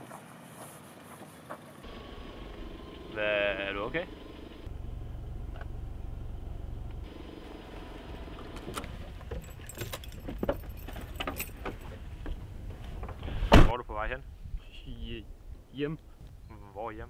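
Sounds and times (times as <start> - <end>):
car engine idling: 1.8 - 11.2
light clicks and rattles: 8.6 - 12.4.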